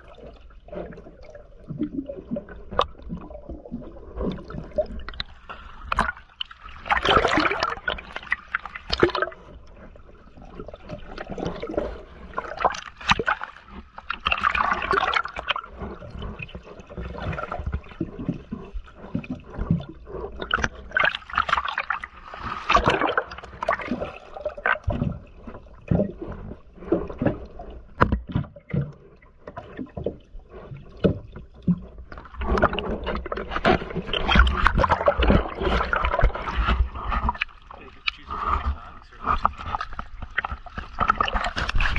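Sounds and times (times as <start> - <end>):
diver exhaling bubbles underwater: 0.0 - 5.3.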